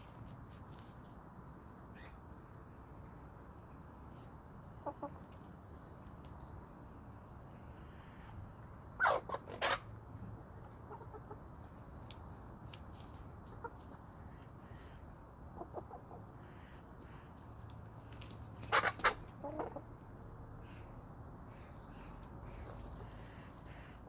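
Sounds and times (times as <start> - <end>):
chickens clucking: 4.6 - 5.5, 9.0 - 12.1, 12.7 - 14.8, 15.5 - 16.4, 18.5 - 20.3.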